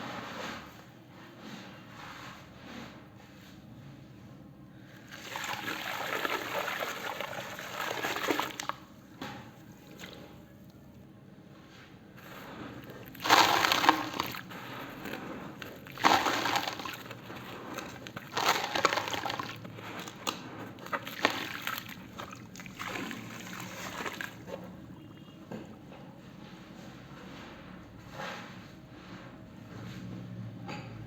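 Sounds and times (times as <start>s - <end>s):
wet cement sloshing: 4.9s - 10.6s, 12.2s - 25.9s.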